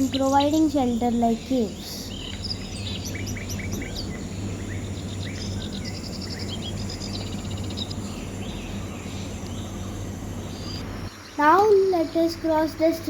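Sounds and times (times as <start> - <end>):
birds chirping and trilling: 0.0 - 13.0.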